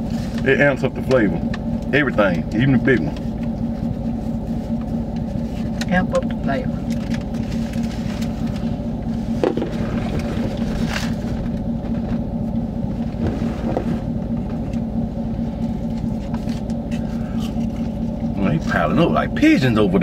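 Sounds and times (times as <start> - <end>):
vehicle idling rumble: 0.0 - 20.0.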